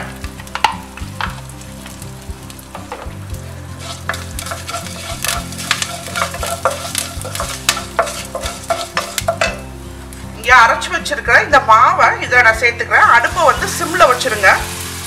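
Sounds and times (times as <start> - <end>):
spices sizzling in hot oil: 0.0 - 10.6, 12.9 - 15.0
wooden spatula scraping pan: 3.7 - 9.7.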